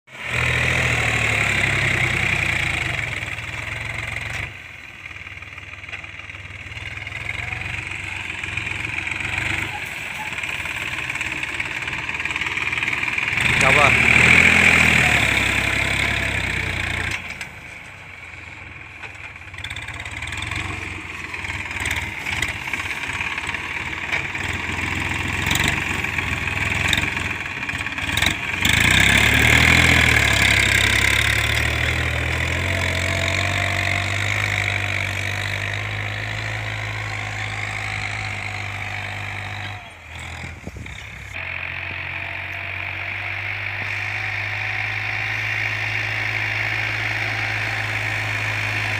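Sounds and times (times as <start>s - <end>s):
tractor diesel engine running: 0.1s - 48.9s
engine knocks: 18.9s - 44.5s.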